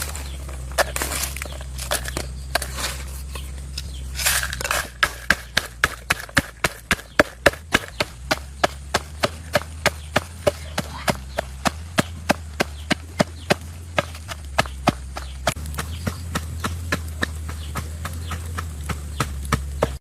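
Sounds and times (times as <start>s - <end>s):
rustling: 0.0s - 8.4s
blade chopping on wood: 3.8s - 20.0s
scattered knocks: 4.9s - 20.0s.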